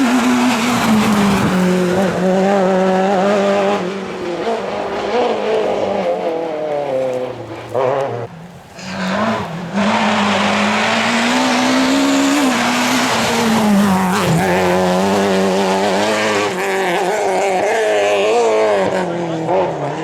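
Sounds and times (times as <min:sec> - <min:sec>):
rally car engine at high revs: 0:00.0 - 0:20.0.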